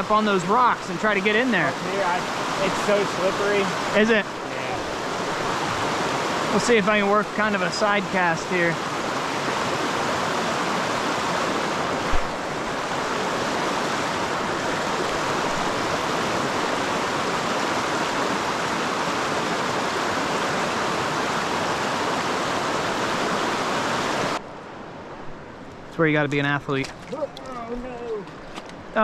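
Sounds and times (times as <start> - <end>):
water rushing over rocks: 0.0 - 24.4.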